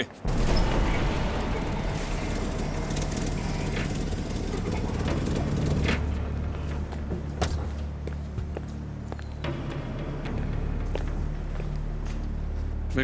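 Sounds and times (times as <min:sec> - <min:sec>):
car engine idling: 0:00.4 - 0:07.4.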